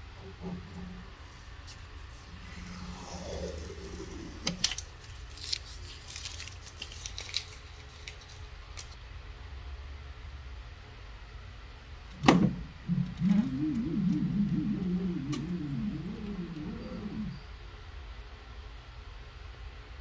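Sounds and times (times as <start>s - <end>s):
steady low hum: 0.0s - 7.3s, 10.0s - 18.3s.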